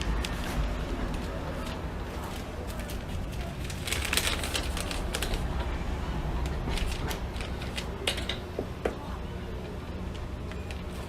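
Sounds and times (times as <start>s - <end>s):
objects clicking and clattering: 6.5s - 9.0s.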